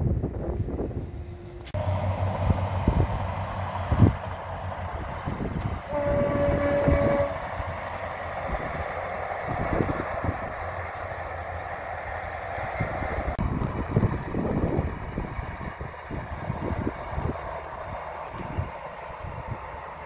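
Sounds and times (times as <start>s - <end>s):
diesel train rumbling past: 0.0s - 20.0s
train horn blast: 5.8s - 7.6s.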